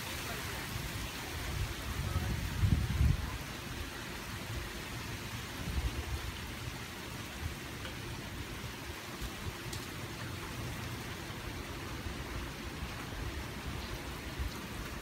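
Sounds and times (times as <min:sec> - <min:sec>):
heavy rain falling: 0:00.0 - 0:15.0
wind gusting on microphone: 0:00.5 - 0:06.7.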